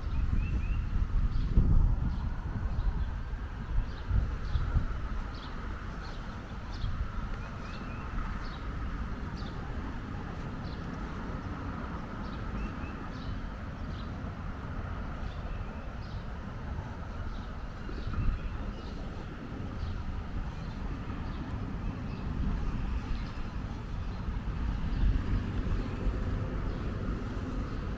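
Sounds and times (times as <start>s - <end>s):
low rumble: 11.6s - 27.9s.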